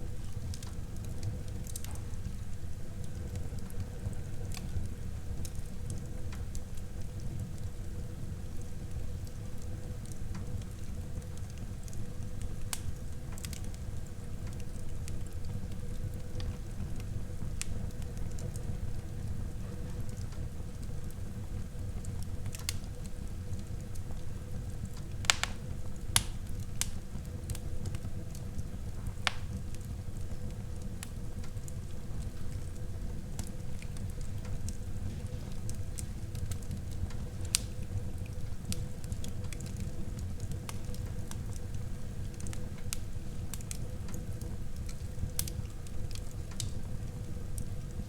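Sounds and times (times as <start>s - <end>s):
fire crackling and popping: 0.0s - 48.0s
fire flames rumbling: 0.0s - 48.0s.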